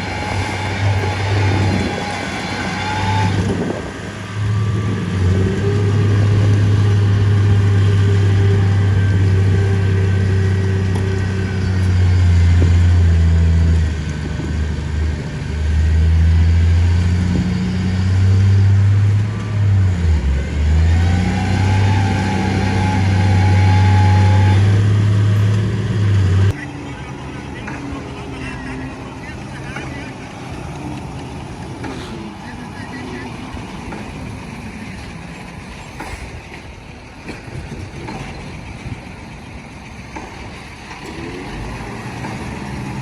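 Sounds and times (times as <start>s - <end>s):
high whine: 0.0s - 14.0s
heavy diesel engine droning: 0.0s - 43.0s.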